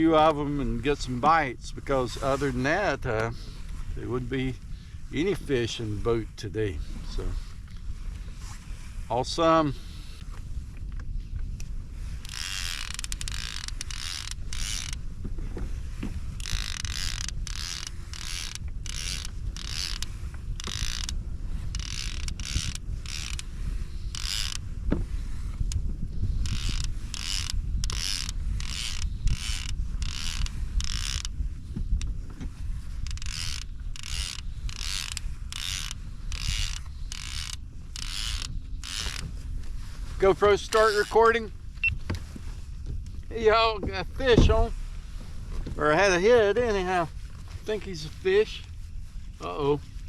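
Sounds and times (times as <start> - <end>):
rhythmic mechanical creak and whirr: 10.1 - 47.0.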